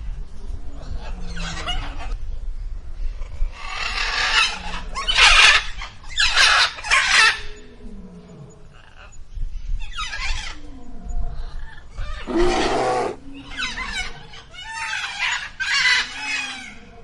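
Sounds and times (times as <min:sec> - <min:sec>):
bird harsh calls: 0:11.7 - 0:16.8.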